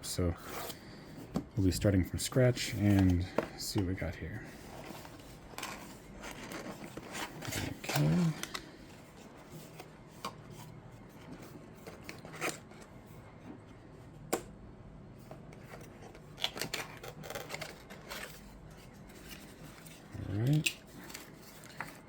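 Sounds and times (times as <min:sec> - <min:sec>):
cardboard box handling clicks and rustles: 0:02.7 - 0:12.9, 0:15.3 - 0:22.0.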